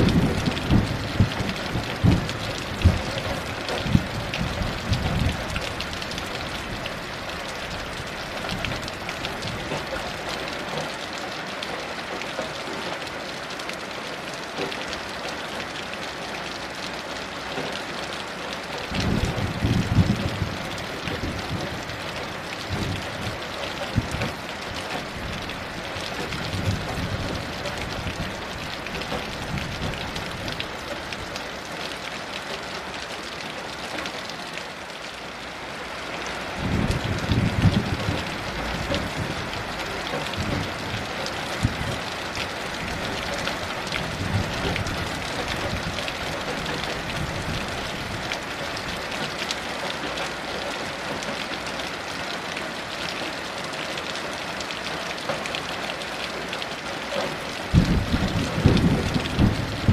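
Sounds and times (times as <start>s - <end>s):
distant thunder rumbles: 0.0s - 6.8s, 18.9s - 30.6s, 36.6s - 42.1s, 57.7s - 59.9s
heavy rain pattering: 0.0s - 59.9s.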